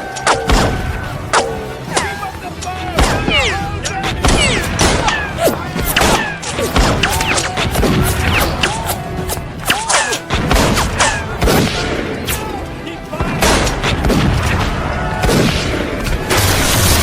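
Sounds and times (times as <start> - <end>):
rifle volleys crackling: 0.0 - 17.0
shouting voices: 0.0 - 17.0
heavy booms: 9.4 - 12.2.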